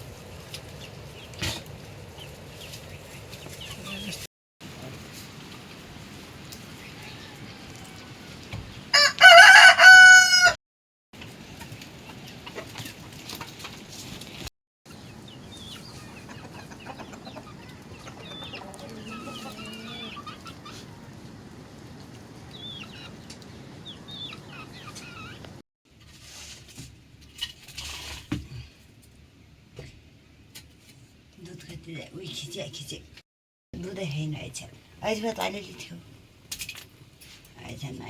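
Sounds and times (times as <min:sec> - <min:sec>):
rooster crowing: 0:06.9 - 0:08.2, 0:08.9 - 0:10.6
chickens clucking: 0:11.2 - 0:14.2, 0:14.9 - 0:25.6.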